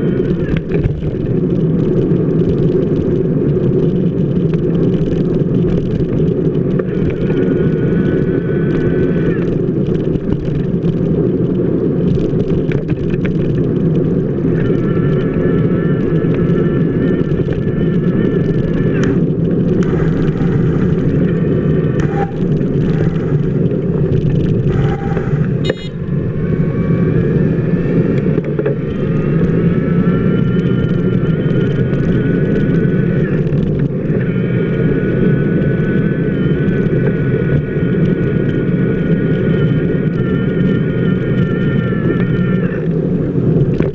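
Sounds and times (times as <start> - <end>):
bicycle wheel rolling on wet pavement: 0.2 - 43.9
high wavering whine: 13.6 - 43.4.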